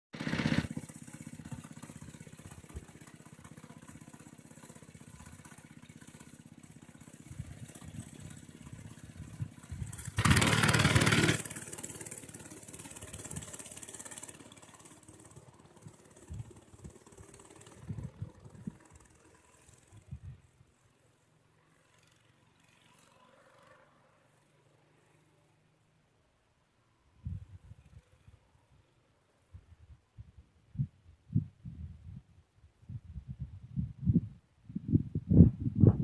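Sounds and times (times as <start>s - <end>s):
minibike engine putter: 0.2s - 25.1s.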